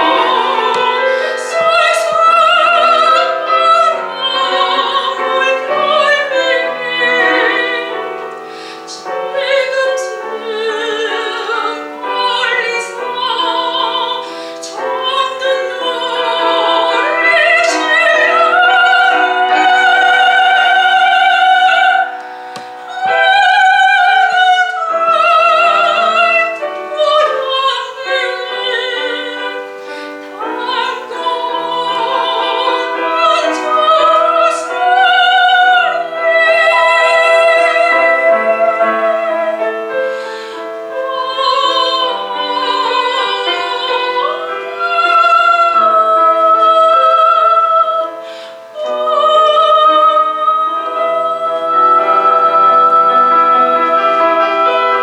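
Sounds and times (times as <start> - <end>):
piano accompaniment: 0.0 - 55.0
soprano singing: 0.0 - 55.0.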